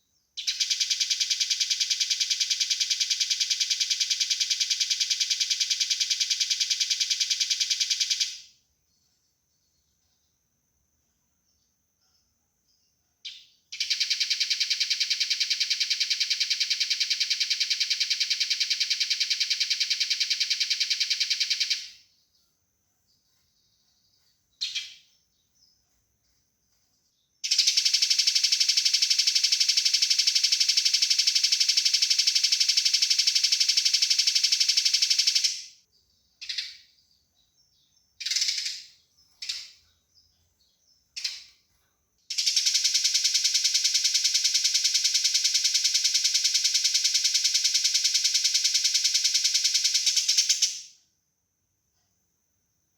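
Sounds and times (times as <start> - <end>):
sparrow single chirps: 23.3 - 26.4, 33.6 - 41.6
sparrow chattering rattles: 24.6 - 25.1, 27.4 - 35.8, 36.4 - 36.9, 38.2 - 39.8, 41.1 - 41.6, 42.3 - 50.9.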